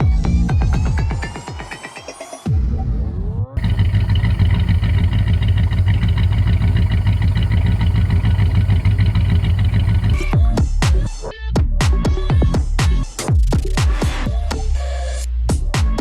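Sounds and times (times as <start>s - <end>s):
car engine idling: 3.6s - 10.3s.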